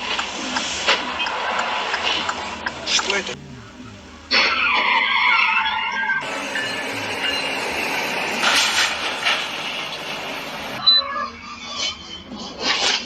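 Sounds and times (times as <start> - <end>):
moving vehicle rumble: 0.0 - 10.9.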